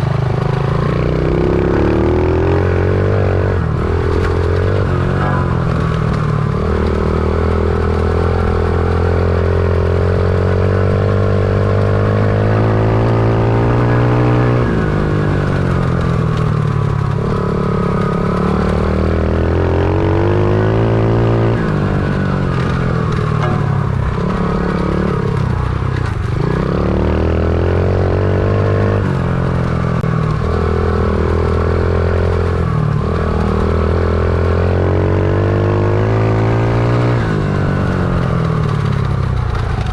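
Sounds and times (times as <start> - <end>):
small motorbike engine revving: 0.0 - 39.9.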